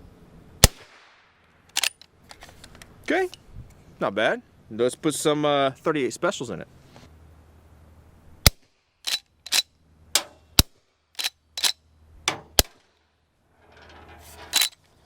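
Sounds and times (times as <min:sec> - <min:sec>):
suppressed rifle shots: 0:00.6 - 0:01.2, 0:12.3 - 0:12.8.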